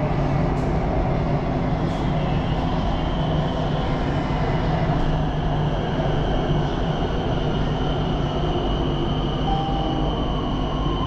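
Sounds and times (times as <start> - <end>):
train rumble inside car: 0.0 - 11.0
faint high whine: 9.4 - 11.0.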